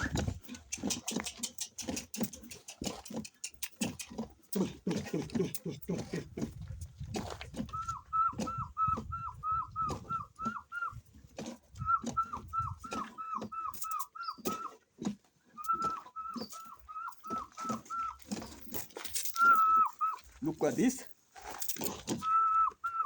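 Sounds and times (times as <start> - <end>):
bird calling repeated notes: 7.7 - 11.0, 11.8 - 14.8, 15.6 - 18.6, 19.3 - 20.3, 22.1 - 23.0.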